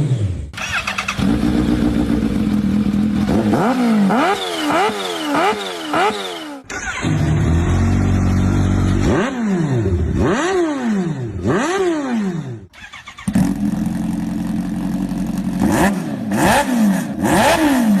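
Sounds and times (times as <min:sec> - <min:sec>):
motorcycle throttle revving: 0:00.0 - 0:18.0
motorcycle idling: 0:00.6 - 0:10.2, 0:12.8 - 0:15.6.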